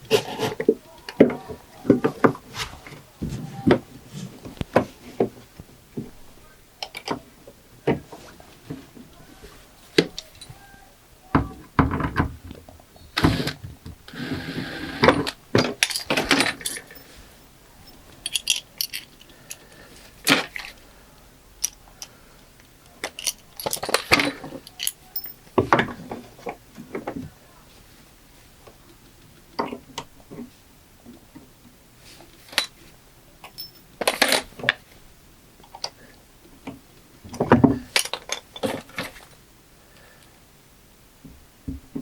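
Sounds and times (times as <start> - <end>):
knocks: 11.3 - 12.6
small metal hardware clinking: 15.2 - 17.2, 17.8 - 19.6, 23.0 - 25.5, 33.4 - 34.5, 37.8 - 39.3.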